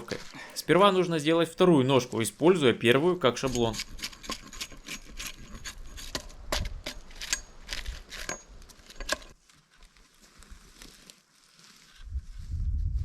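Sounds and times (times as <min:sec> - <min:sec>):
knocks and scrapes on wooden poles: 0:03.3 - 0:12.0.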